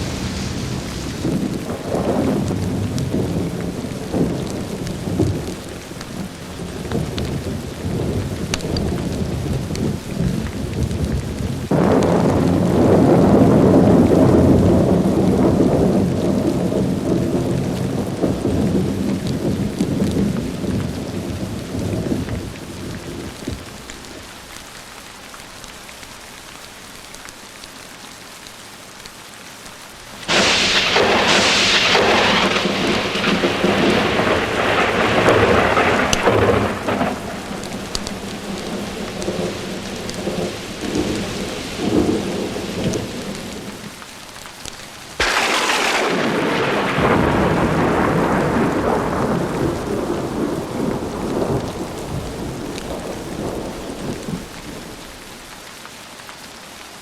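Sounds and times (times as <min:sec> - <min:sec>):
sharp thunderclap: 0:00.0 - 0:05.7, 0:06.6 - 0:23.7, 0:30.2 - 0:43.9, 0:45.2 - 0:55.0
thunder rumbling: 0:00.0 - 0:24.2, 0:30.2 - 0:44.0, 0:45.2 - 0:55.4
steady rain: 0:00.0 - 0:57.0.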